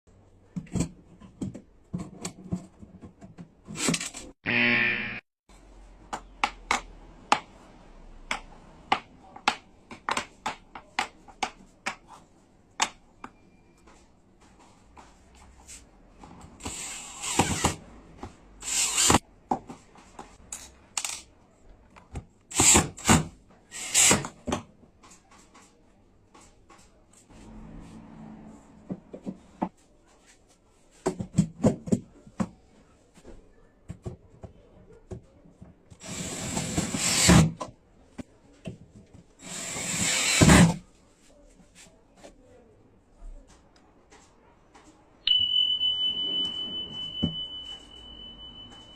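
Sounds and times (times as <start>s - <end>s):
sharp taps and clicks on wood: 6.1s - 7.5s.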